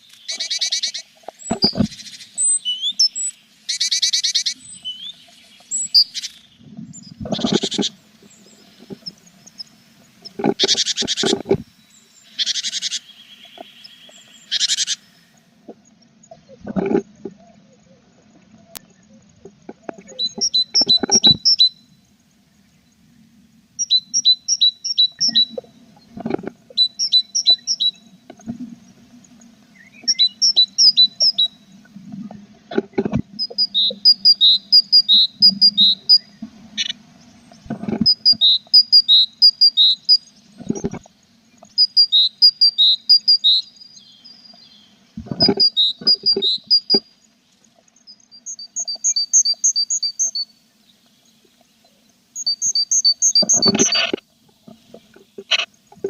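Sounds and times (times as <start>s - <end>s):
faint steady low hum: 11.6s - 42.0s.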